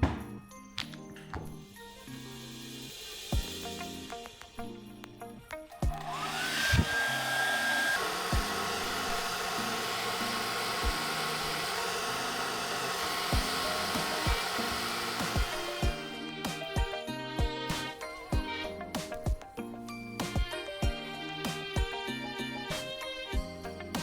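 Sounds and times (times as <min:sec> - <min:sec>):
background music with beat: 0:00.0 - 0:06.3, 0:13.3 - 0:24.0
small electric motor whining: 0:05.9 - 0:18.0.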